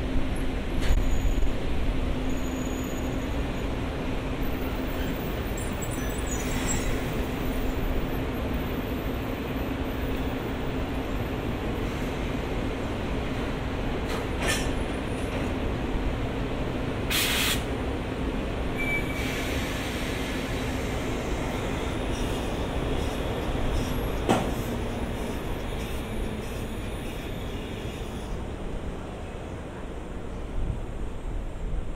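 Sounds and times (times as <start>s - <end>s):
train running noise: 0.0s - 31.9s
air hiss: 17.1s - 17.7s.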